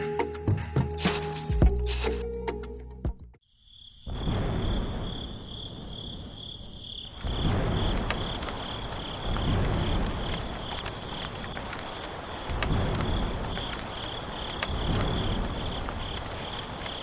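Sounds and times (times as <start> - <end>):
crickets chirping: 3.4 - 17.0.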